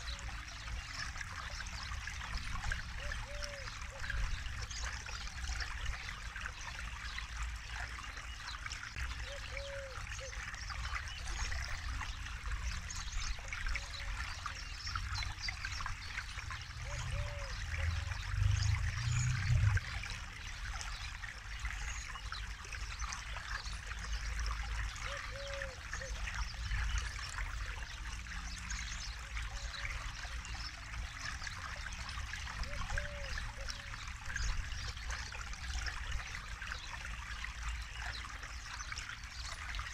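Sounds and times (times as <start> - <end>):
low rumble: 17.8 - 20.0.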